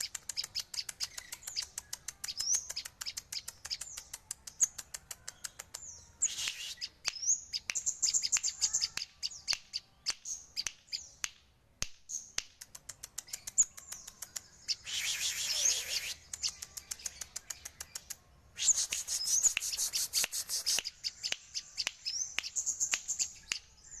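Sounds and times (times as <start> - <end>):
bird calling with clicks and whistles: 0.0 - 11.3, 12.1 - 24.0
harsh raspy bird bursts: 14.8 - 16.3, 18.6 - 20.9.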